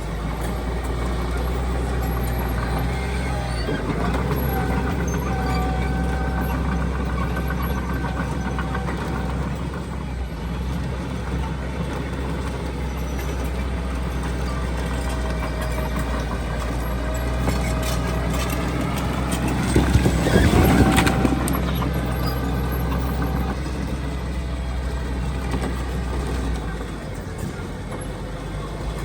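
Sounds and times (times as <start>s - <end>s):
diesel machinery engine drone: 0.0s - 29.0s
machinery clanking: 0.0s - 29.0s.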